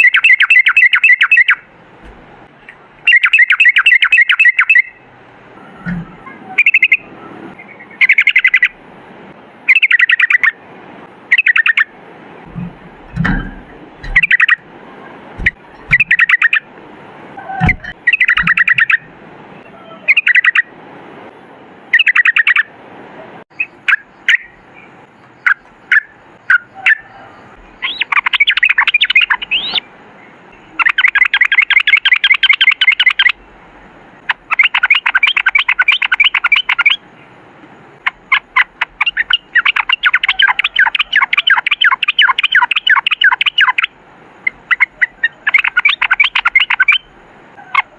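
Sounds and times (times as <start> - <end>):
bird singing rattling notes: 0.0 - 8.8, 9.6 - 10.6, 11.2 - 16.7, 17.4 - 20.7, 21.9 - 22.7, 23.5 - 33.6, 34.2 - 47.8.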